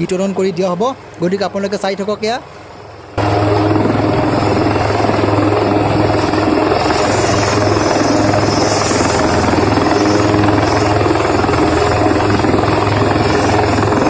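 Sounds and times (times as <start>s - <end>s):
helicopter engine hum: 2.7s - 14.0s
helicopter rotor chopping: 2.8s - 14.0s.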